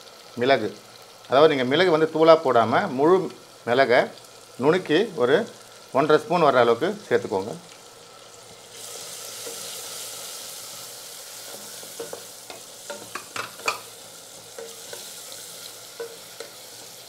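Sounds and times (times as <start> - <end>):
vegetables sizzling in oil: 0.0 - 17.0
wooden spatula clacking on steel pot: 12.0 - 13.9.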